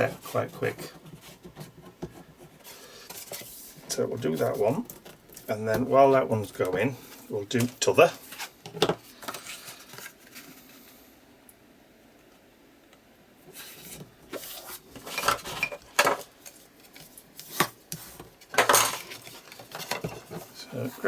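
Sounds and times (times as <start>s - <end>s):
craft tools knocking and clinking: 18.6s - 19.2s.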